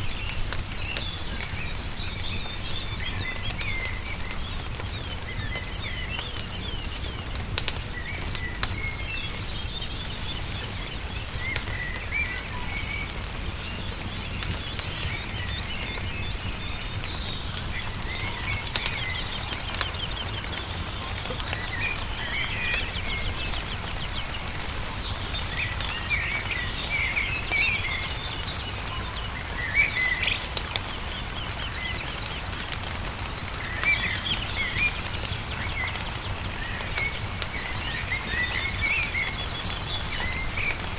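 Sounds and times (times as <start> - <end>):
songbirds chirping and trilling: 0.0 - 40.9
wood fire crackling: 0.0 - 40.9.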